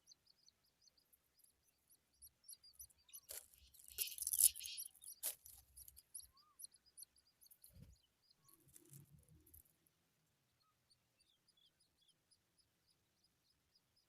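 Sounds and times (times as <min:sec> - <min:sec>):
nestlings cheeping: 0:02.5 - 0:07.9.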